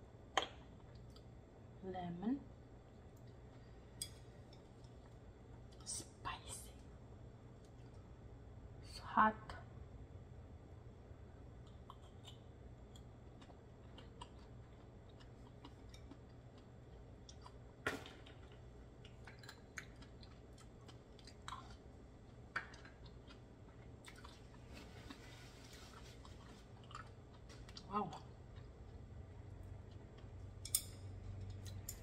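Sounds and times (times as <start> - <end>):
wet chewing mouth clicks: 11.6 - 12.4.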